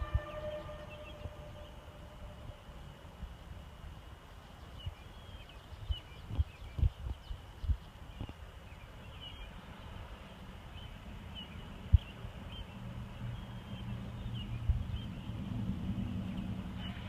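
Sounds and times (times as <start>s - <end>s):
low rumble: 0.0s - 3.9s
steady low hum: 0.0s - 5.4s
small birds chirping: 3.9s - 17.0s.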